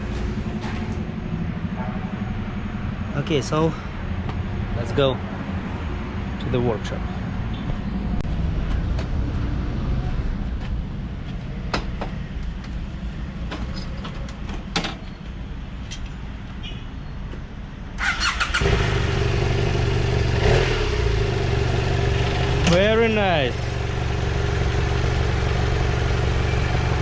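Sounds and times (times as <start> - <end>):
motorcycle engine starting: 18.0 - 23.1
motorcycle engine idling: 18.3 - 27.0.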